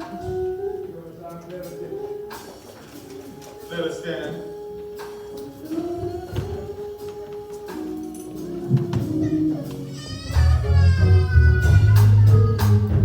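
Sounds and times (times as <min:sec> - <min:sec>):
heavy bass: 0:10.2 - 0:13.0.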